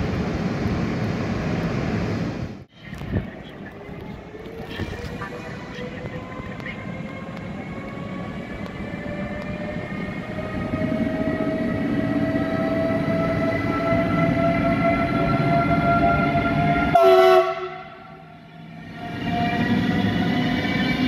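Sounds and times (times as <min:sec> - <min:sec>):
train rumble: 0:00.0 - 0:21.0
electric locomotive motors whining: 0:02.9 - 0:21.0
train horn blast: 0:16.8 - 0:18.2.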